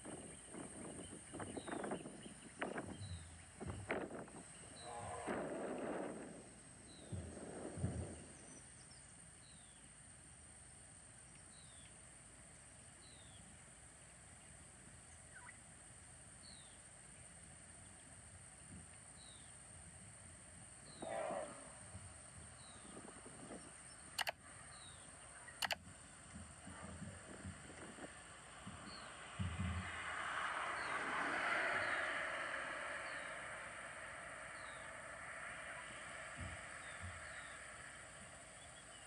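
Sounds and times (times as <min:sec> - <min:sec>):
sharp clicks: 0:24.0 - 0:24.4, 0:25.5 - 0:25.8
bird chirping: 0:30.6 - 0:39.0.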